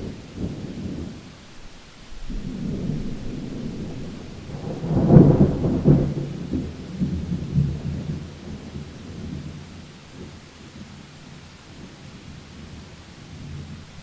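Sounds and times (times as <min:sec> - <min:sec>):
thunder rumbling: 0:00.0 - 0:11.0
steady rain: 0:00.0 - 0:14.0.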